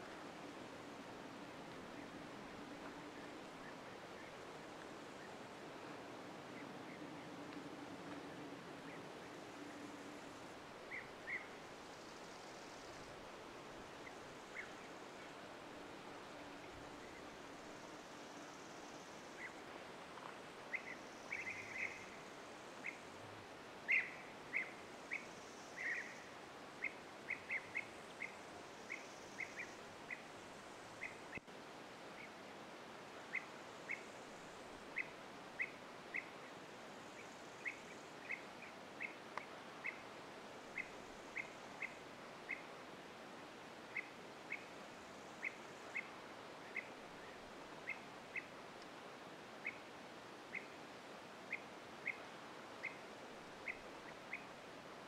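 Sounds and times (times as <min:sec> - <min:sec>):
faint outdoor hiss: 0:00.0 - 0:55.0
bird chirping: 0:20.7 - 0:22.2, 0:23.9 - 0:30.3, 0:40.8 - 0:42.7, 0:52.8 - 0:53.0.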